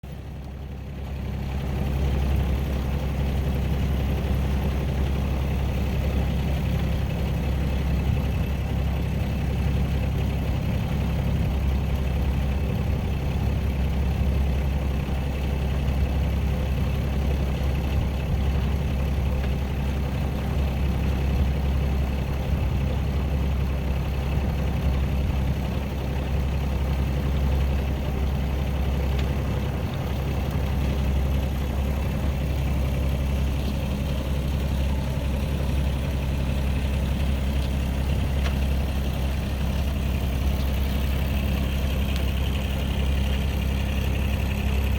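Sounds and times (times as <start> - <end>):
aircraft engine droning: 27.3 - 44.9.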